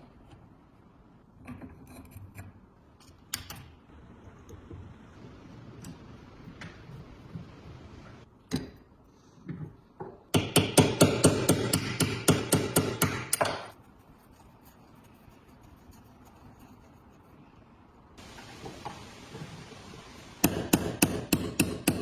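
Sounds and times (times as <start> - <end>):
hammer blows ringing on metal: 10.4 - 13.6, 20.4 - 22.0.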